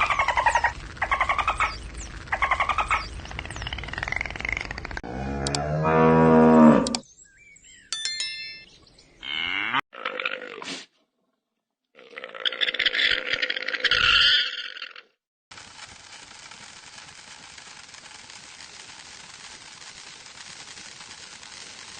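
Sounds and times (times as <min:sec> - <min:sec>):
cow mooing: 0:05.0 - 0:07.0, 0:09.2 - 0:09.8.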